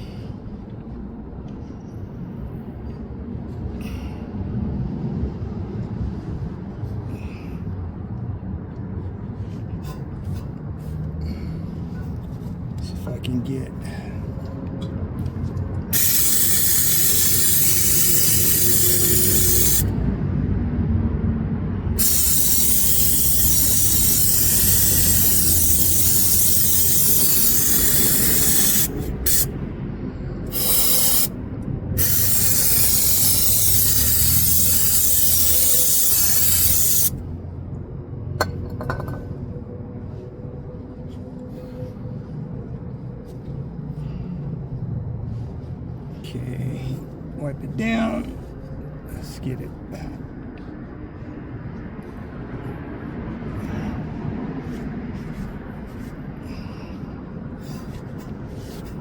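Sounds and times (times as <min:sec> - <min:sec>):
aerosol can spraying: 0:15.9 - 0:19.9, 0:22.0 - 0:29.5, 0:30.5 - 0:31.3, 0:32.0 - 0:37.1.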